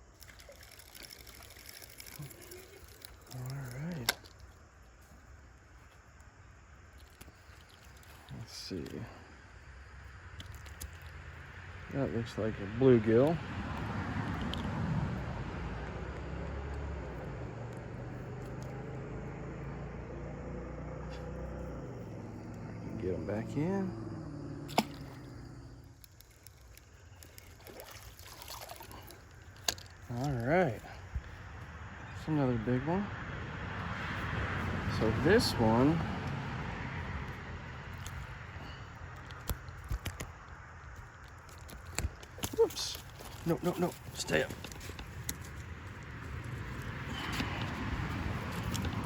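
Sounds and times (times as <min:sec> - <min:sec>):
steady outdoor hiss: 0:00.0 - 0:49.0
vehicle humming on road: 0:11.1 - 0:27.4, 0:29.4 - 0:49.0.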